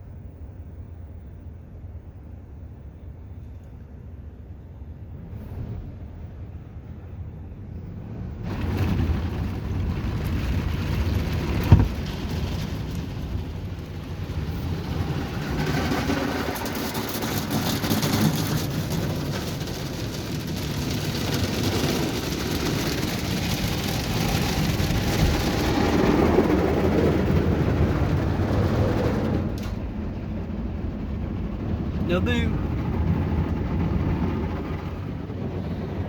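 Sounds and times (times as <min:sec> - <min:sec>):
water spray on car body: 0:08.5 - 0:26.2.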